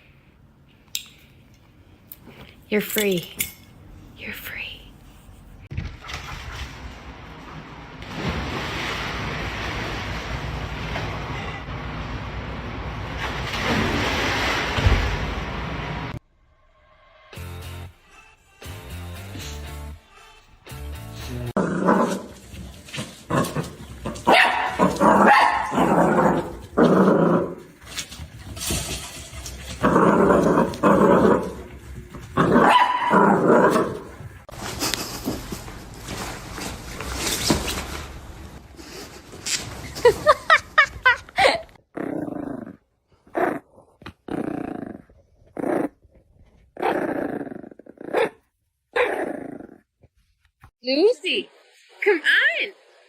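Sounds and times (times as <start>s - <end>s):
music: 17.2s - 21.5s
dog barking and growling: 21.5s - 27.8s, 29.2s - 34.4s, 46.8s - 49.8s
dog barking: 24.2s - 26.0s, 32.5s - 33.3s.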